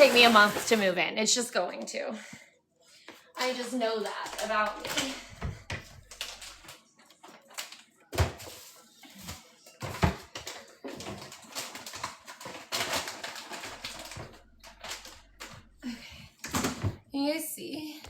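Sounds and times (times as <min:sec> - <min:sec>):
packaging crinkling: 0:03.4 - 0:07.9, 0:10.2 - 0:16.0.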